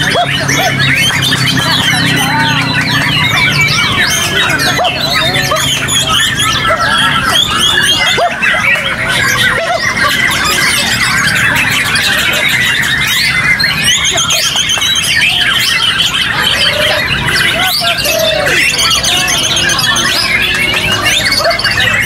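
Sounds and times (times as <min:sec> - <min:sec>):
birds singing: 0:00.0 - 0:22.0
murmur of crowd voices: 0:00.0 - 0:22.0.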